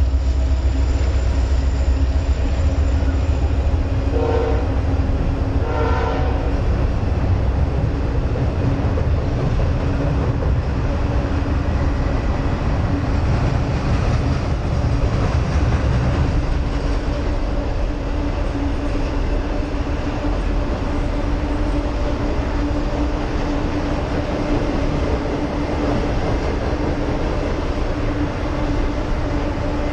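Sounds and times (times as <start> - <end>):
sustained hum: 0.0 - 8.3
freight train rumbling over bridge: 0.0 - 29.9.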